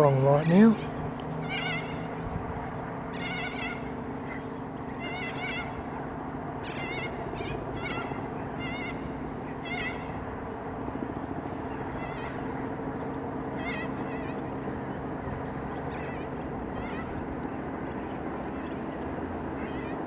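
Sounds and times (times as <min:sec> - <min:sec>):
steady low hum: 0:00.0 - 0:20.0
animal high wavering cries: 0:00.7 - 0:06.0, 0:06.6 - 0:10.4, 0:11.6 - 0:12.8, 0:13.4 - 0:14.9, 0:15.6 - 0:17.7, 0:19.4 - 0:20.0.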